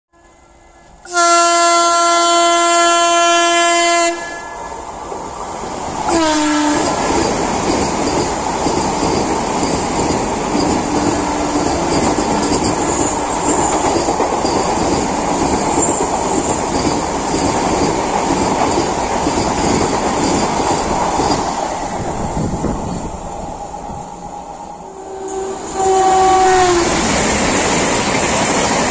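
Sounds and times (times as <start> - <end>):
train horn blast: 0.1 - 4.7, 6.1 - 7.1, 24.8 - 27.0
train rushing past: 2.2 - 28.9.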